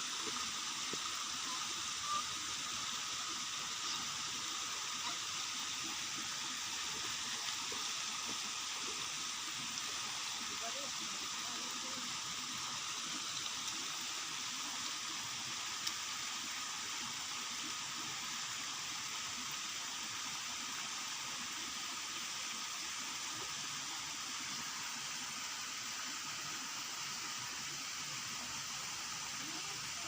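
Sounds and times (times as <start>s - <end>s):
water hissing: 0.0s - 30.0s
faint click: 15.8s - 16.0s.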